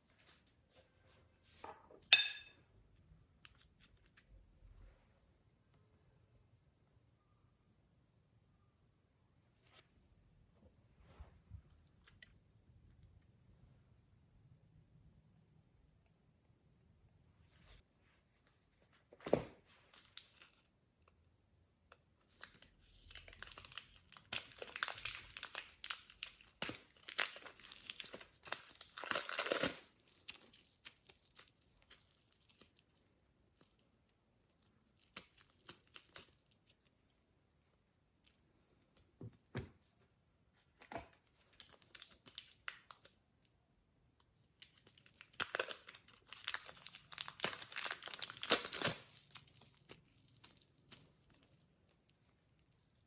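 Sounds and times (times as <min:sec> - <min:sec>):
slime sticky crackles and pops: 0:44.6 - 0:53.0.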